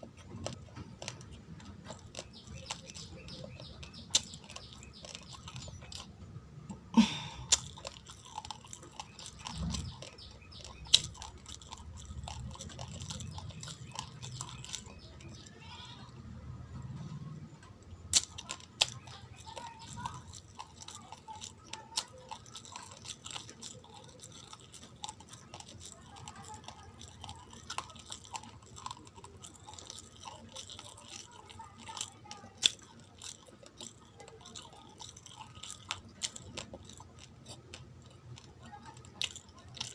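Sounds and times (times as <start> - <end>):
chewing raw rice crunching: 0.0 - 39.9.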